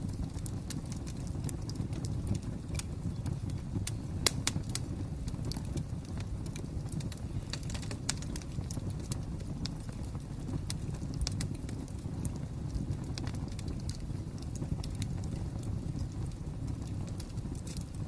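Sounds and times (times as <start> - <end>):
flames low rumble: 0.0 - 18.0
wood fire crackling: 0.0 - 18.0.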